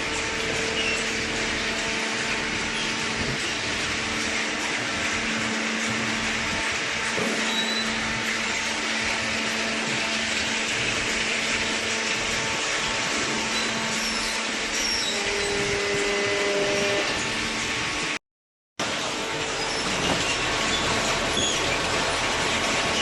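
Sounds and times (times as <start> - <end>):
baler machine running: 0.0 - 18.2, 18.8 - 23.0
higher steady machine tone: 5.6 - 11.1.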